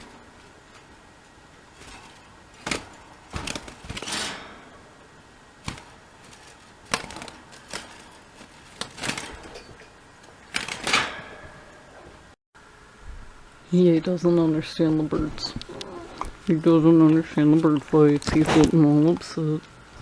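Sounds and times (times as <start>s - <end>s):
doves fighting slaps and clatters: 1.7s - 4.2s, 5.6s - 11.2s.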